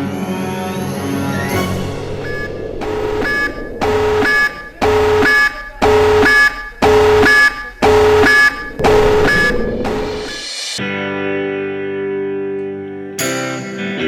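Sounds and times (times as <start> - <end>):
electronic alarm beeping: 1.6 - 10.5.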